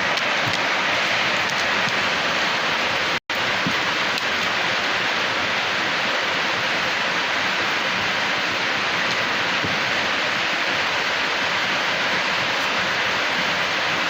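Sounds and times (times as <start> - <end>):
heavy rain and floodwater rushing: 0.0 - 14.0.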